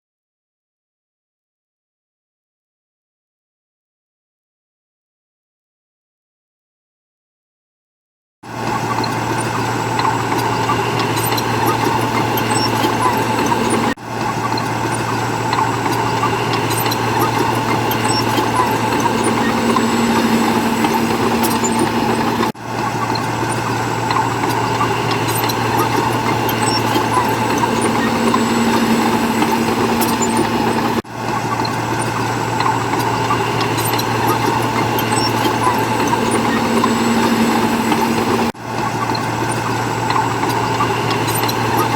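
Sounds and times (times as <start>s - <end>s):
diesel engine running: 8.6s - 38.5s.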